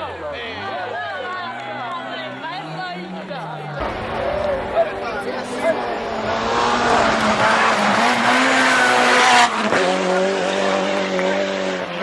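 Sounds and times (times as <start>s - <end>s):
rally car engine revving: 3.8s - 12.0s.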